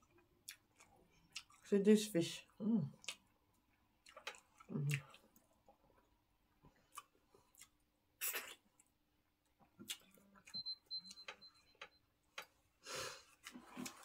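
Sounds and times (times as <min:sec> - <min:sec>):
lip smacks and chewing clicks: 0:00.0 - 0:01.7, 0:03.0 - 0:06.1, 0:06.7 - 0:11.4
short breath: 0:12.8 - 0:13.3.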